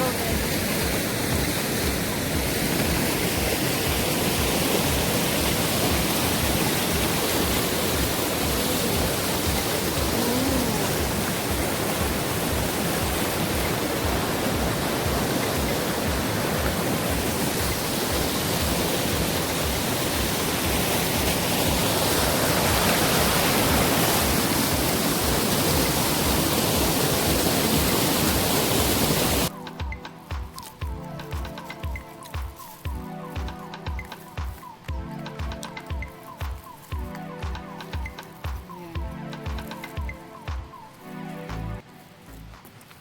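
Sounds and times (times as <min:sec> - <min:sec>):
waterfall roaring: 0:00.0 - 0:29.5
music with low beat: 0:00.3 - 0:27.5, 0:29.5 - 0:43.0.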